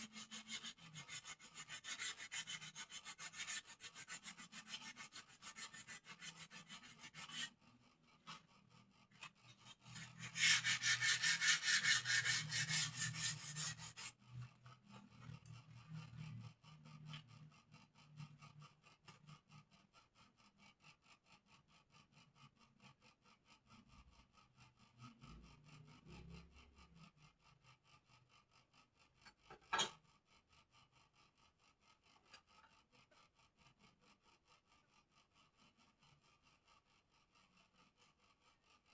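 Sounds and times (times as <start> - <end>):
hand rubbing wood: 9.7 - 14.1.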